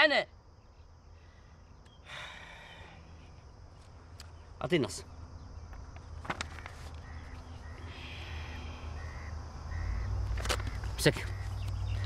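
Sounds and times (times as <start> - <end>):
low outdoor rumble: 0.3 - 12.0.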